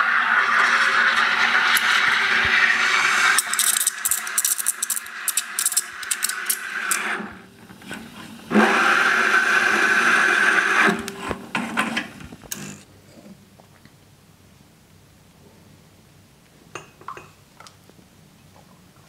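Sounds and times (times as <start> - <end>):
espresso machine steam wand hissing: 0.0 - 12.1
clicks and crackles: 3.4 - 7.1.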